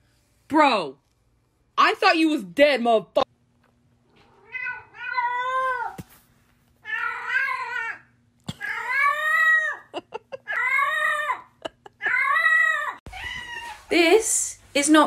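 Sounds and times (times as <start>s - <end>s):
cat meowing: 4.3s - 6.0s, 12.4s - 13.9s.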